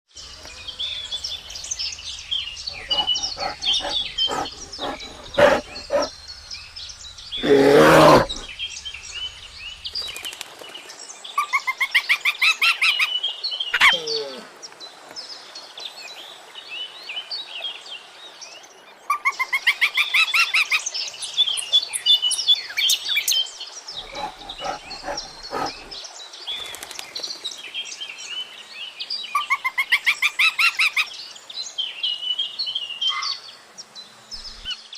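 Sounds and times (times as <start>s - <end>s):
birds chirping and calling: 1.0s - 6.1s, 6.9s - 9.2s, 24.0s - 26.0s
loud animal call: 2.7s - 6.1s, 7.4s - 8.5s, 24.0s - 26.0s.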